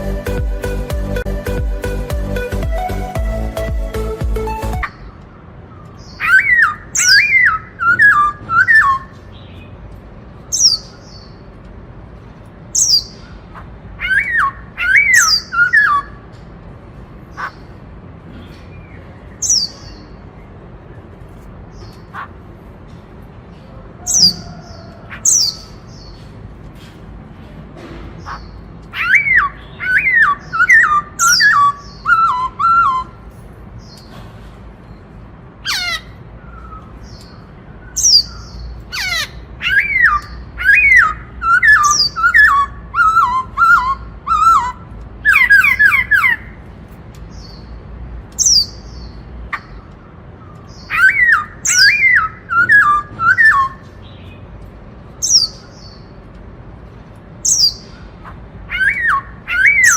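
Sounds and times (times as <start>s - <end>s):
high squeaky bird notes: 0.0s - 9.8s, 28.2s - 34.1s, 48.4s - 56.2s
bird whistling song: 6.0s - 9.7s, 14.0s - 16.2s, 19.3s - 20.1s, 28.3s - 33.2s, 35.7s - 46.6s, 50.4s - 54.4s, 58.7s - 59.9s.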